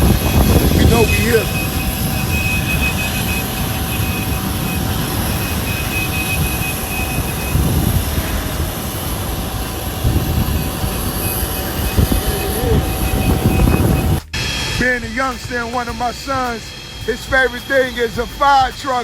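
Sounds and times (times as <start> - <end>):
high whistle: 0.0 - 19.0
jet aircraft rumble: 0.0 - 19.0.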